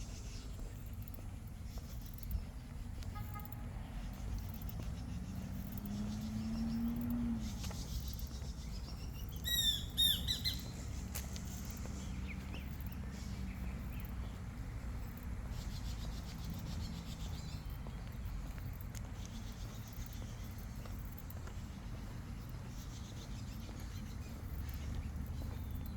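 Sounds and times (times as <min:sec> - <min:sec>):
bird calling: 0:00.0 - 0:14.3.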